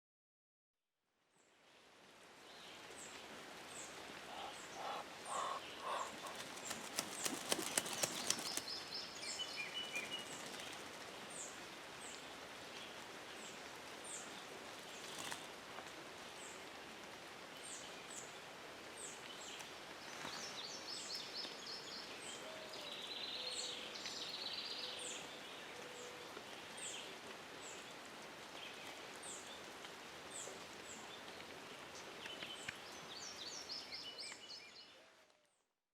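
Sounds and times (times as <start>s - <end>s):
rain falling: 1.6s - 33.3s
small bird chirping: 4.3s - 10.8s.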